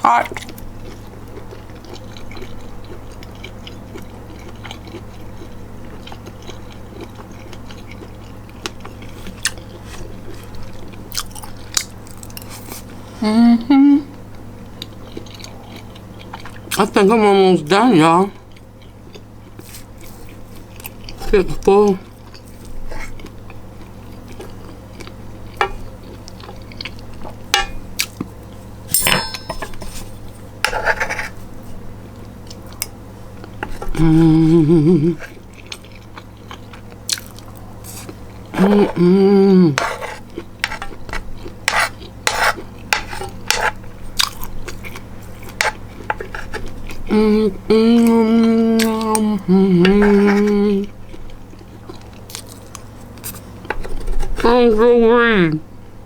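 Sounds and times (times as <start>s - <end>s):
person chewing: 0.2s - 13.1s, 14.1s - 17.0s, 18.3s - 28.7s, 29.9s - 54.4s
person humming: 13.1s - 14.1s, 33.8s - 35.3s, 38.6s - 40.0s, 47.0s - 50.9s
utensil clinking on a plate: 27.6s - 27.8s, 28.9s - 30.8s.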